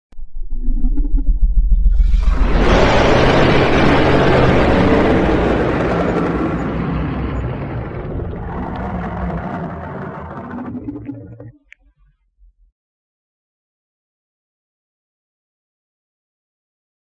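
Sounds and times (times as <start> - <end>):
low rumble: 0.1 - 12.7
loud rushing blast of noise: 1.6 - 11.6.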